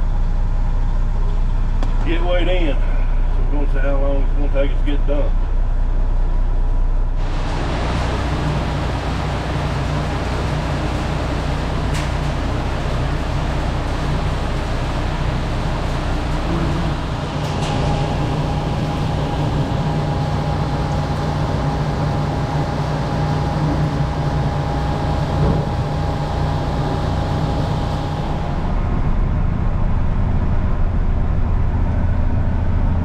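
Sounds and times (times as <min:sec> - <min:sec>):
thin steady whine: 0:00.0 - 0:33.0
truck engine running: 0:00.0 - 0:33.0.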